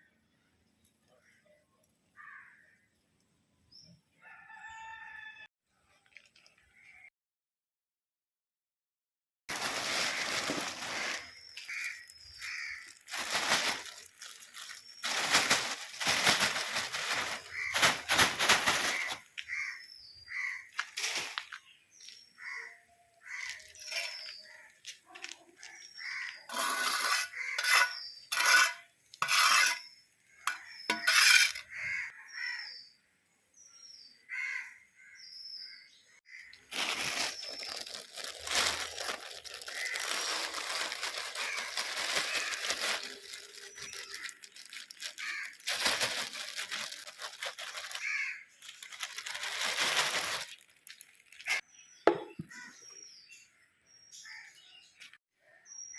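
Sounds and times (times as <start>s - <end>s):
rustling and crinkling: 9.5s - 19.8s, 20.4s - 22.2s, 23.2s - 29.8s, 36.5s - 51.6s
small birds chirping: 10.0s - 31.0s, 35.0s - 55.9s.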